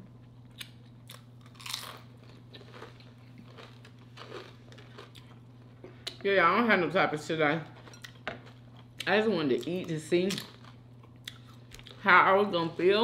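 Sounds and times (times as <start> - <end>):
person chewing: 0.4 - 6.2, 7.8 - 9.1, 10.4 - 12.0
food crunch: 0.6 - 6.2.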